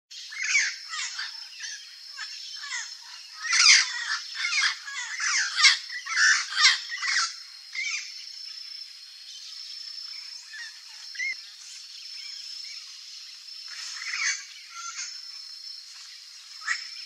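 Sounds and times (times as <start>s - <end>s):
parrots squawking: 2.6s - 8.0s.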